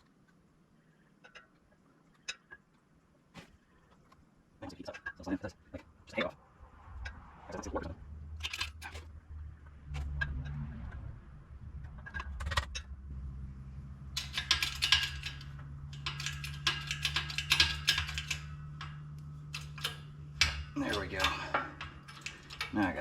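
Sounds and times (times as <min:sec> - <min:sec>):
low hum: 0:05.4 - 0:23.0
clicks of metal parts handled: 0:08.4 - 0:09.1, 0:14.0 - 0:23.0.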